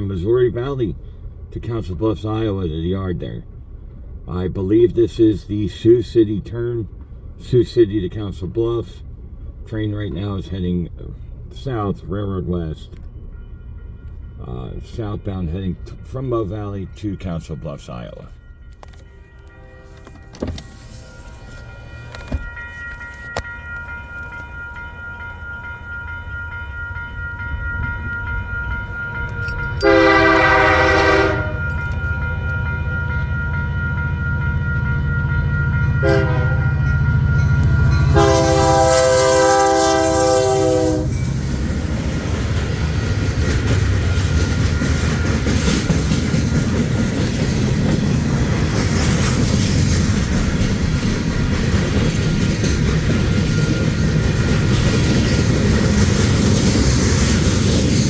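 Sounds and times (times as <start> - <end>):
locomotive engine rumble: 0.0 - 58.0
train horn blasts: 29.8 - 32.0, 36.0 - 41.2
train wheels clattering on rails: 41.2 - 58.0.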